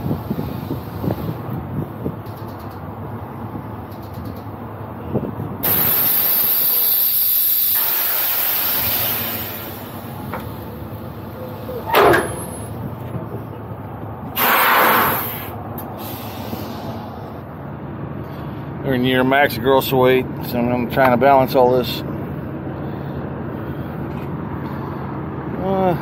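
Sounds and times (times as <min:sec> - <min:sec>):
compressed air hissing out: 0:05.6 - 0:10.1, 0:14.3 - 0:17.1.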